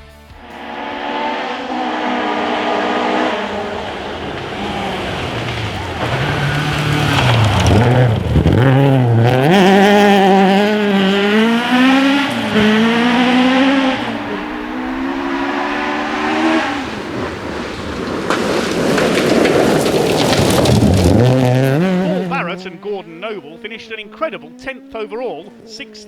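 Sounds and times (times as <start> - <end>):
rally car engine at full throttle: 0.0 - 26.0.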